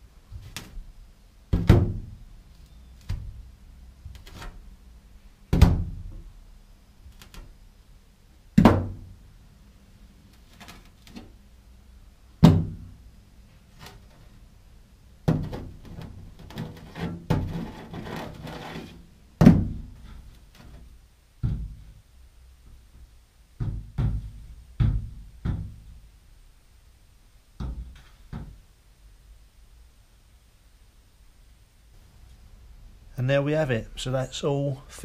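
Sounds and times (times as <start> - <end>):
magnet scraping on metal: 16.5 - 19.0.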